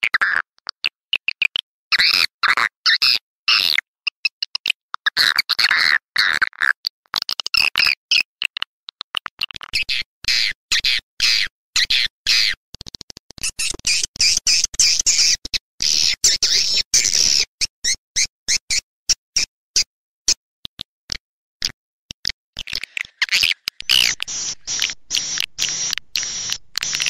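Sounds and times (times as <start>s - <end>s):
swiftlet chirps and twitters: 13.4s - 18.8s, 22.6s - 27.0s.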